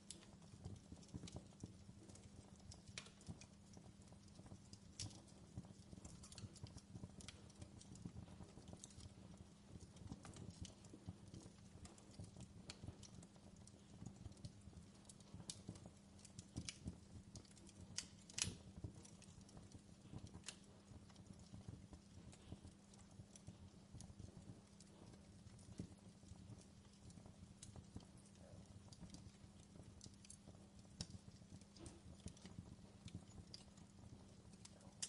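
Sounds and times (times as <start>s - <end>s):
low steady hum: 0.0s - 35.0s
wood fire crackling: 0.0s - 35.0s.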